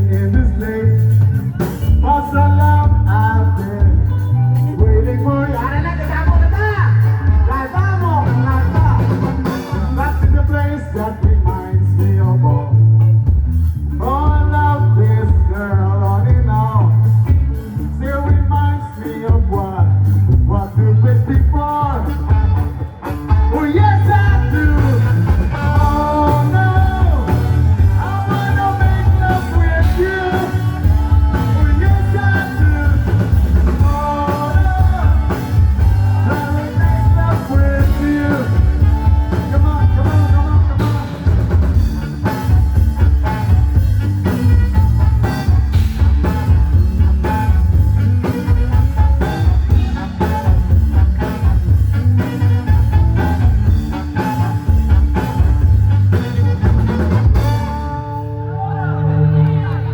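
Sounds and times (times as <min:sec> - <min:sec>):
person singing: 0:00.0 - 0:12.8, 0:14.0 - 0:46.4, 0:56.2 - 0:59.9
heavy bass beat: 0:00.0 - 0:58.0
rock band playing: 0:00.0 - 0:59.9.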